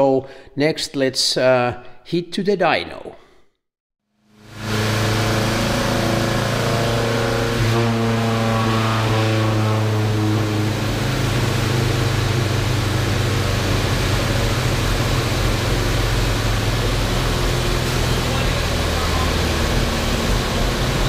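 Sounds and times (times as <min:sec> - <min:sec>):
car engine idling: 0:07.8 - 0:21.0.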